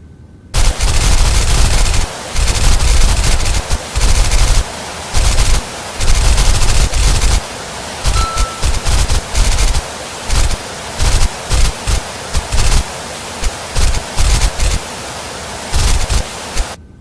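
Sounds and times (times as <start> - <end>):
water jets spraying: 0.6 - 16.8.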